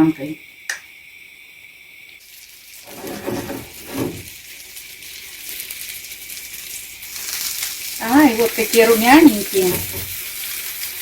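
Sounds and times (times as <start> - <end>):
crepes sizzling in a frying pan: 2.2 - 11.0.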